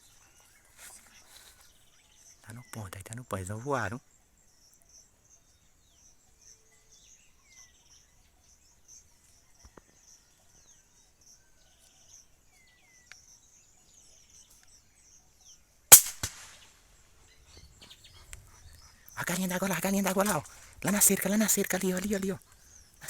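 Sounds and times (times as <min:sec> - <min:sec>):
gunshot with echoes: 0:15.9 - 0:16.6
falling bird chirps: 0:15.9 - 0:23.0
insects chirping: 0:15.9 - 0:23.0.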